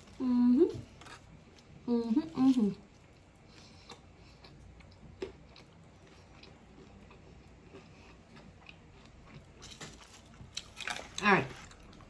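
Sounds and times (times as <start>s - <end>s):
person chewing food: 2.8s - 12.0s.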